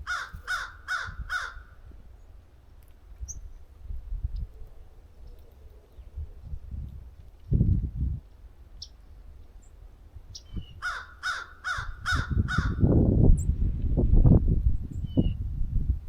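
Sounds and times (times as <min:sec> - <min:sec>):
crow cawing: 0:00.0 - 0:01.8, 0:10.8 - 0:12.8
wind buffeting microphone: 0:00.0 - 0:02.2, 0:03.0 - 0:16.0.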